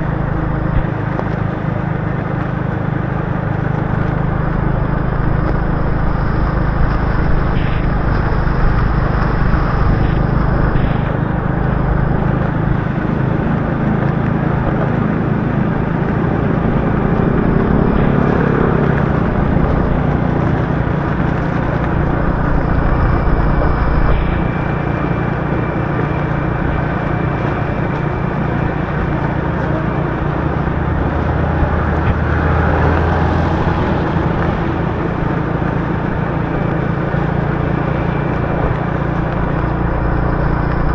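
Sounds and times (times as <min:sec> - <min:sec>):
motorbike engine running: 0:00.0 - 0:40.9
rain hissing: 0:00.0 - 0:40.9
tyres on wet road: 0:00.0 - 0:40.9.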